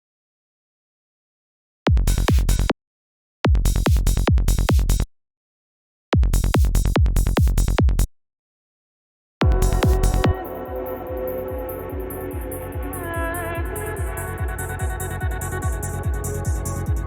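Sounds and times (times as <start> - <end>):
electronic kick drum and bass: 1.9 - 2.7, 3.5 - 5.1, 6.2 - 8.1, 9.4 - 17.0.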